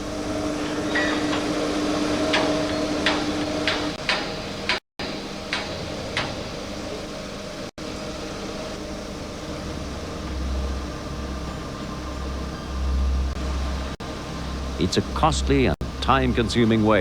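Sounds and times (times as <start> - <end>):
steady mechanical hum: 0.0 - 17.0
sharp metallic clanks: 0.5 - 7.2.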